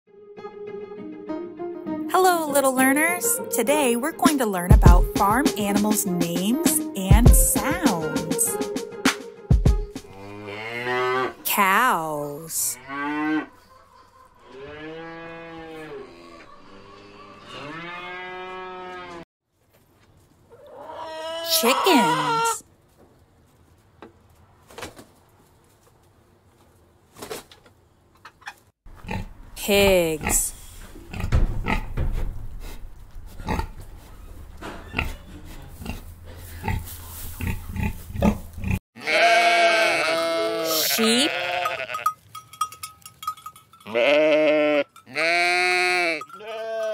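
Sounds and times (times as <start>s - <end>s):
cow mooing: 10.0s - 11.4s, 12.6s - 13.6s, 14.4s - 19.2s, 20.7s - 22.6s, 38.7s - 42.1s, 43.9s - 46.9s
pigs grunting: 12.9s - 19.2s, 32.6s - 41.6s
sheep bleating: 20.7s - 22.6s, 39.0s - 42.2s, 43.9s - 46.9s.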